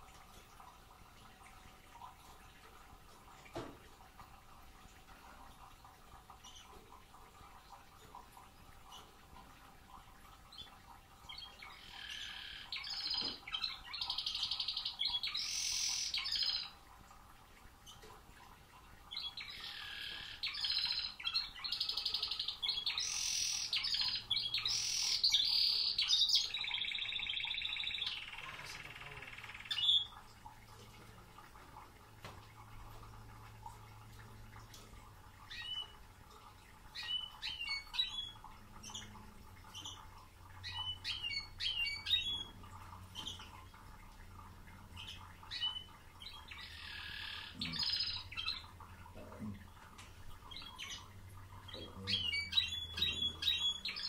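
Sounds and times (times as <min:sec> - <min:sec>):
canary singing trills: 0:10.6 - 0:16.8, 0:19.1 - 0:30.2, 0:35.5 - 0:36.0, 0:37.0 - 0:43.5, 0:45.0 - 0:48.7, 0:51.7 - 0:54.0.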